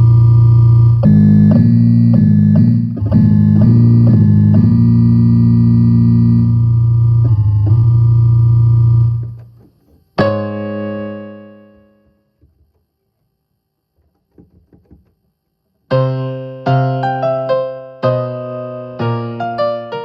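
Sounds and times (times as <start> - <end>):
electronic keyboard piano notes: 0.0 - 9.4, 10.2 - 12.2, 15.9 - 20.0.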